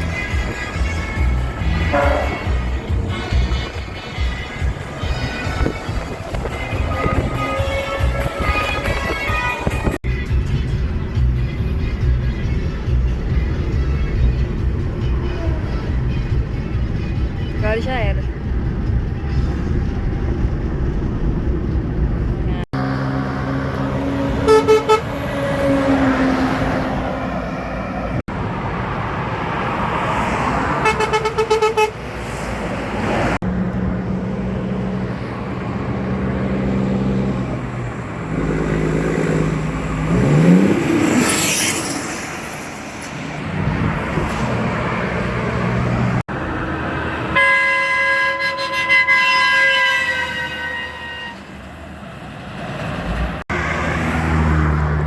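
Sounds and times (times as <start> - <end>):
truck air horns: 0.0 - 9.9, 23.5 - 27.5, 30.6 - 32.4, 47.3 - 51.7
diesel engine and tyre noise: 0.0 - 55.0.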